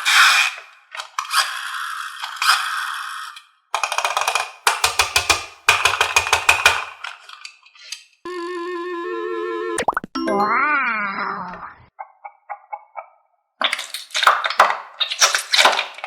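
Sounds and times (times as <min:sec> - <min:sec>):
rapid wood-block clicking: 0:03.8 - 0:07.0
held musical tone: 0:08.3 - 0:11.0.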